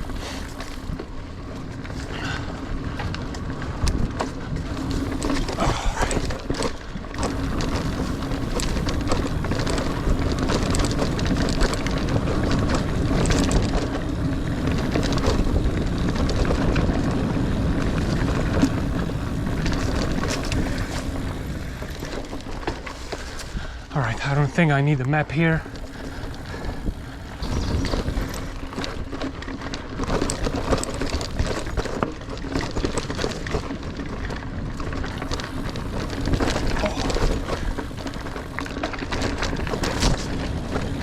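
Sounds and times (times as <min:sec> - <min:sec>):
bike clicks and rattles: 0:00.0 - 0:41.0
bike tyres rumbling on trail: 0:00.0 - 0:41.0
wind on microphone: 0:25.7 - 0:29.2.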